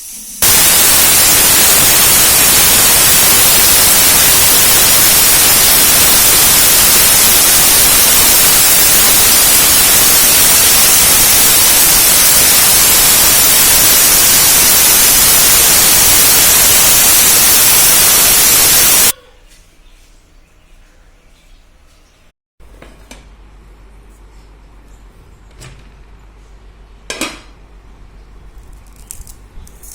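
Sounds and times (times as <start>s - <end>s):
loud static hiss: 0.0s - 19.2s.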